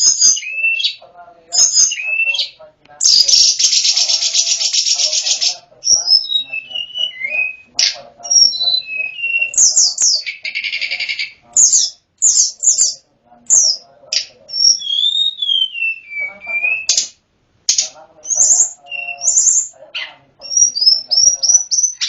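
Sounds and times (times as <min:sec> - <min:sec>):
bird whistled song: 0:00.0 - 0:01.0, 0:01.6 - 0:17.1, 0:17.7 - 0:19.8, 0:20.4 - 0:22.0
bird buzzy trill: 0:00.0 - 0:17.1, 0:17.7 - 0:22.0.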